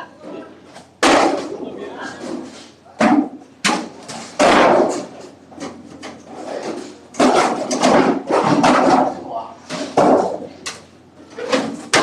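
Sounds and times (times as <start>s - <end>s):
hard objects knocking and banging: 3.0s - 12.0s.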